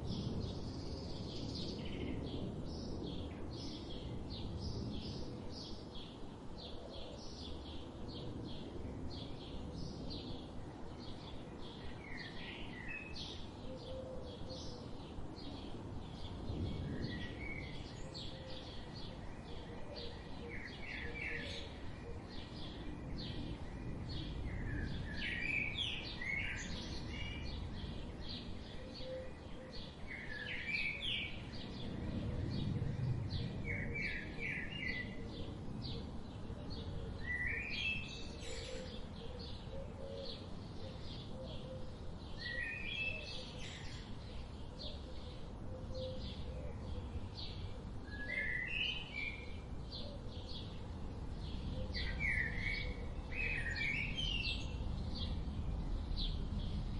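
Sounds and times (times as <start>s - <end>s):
low steady background rumble: 42.9s - 56.9s.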